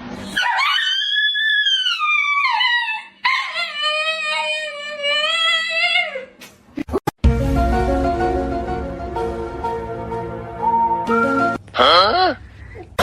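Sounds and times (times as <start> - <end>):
dog howling: 0.3 - 6.3.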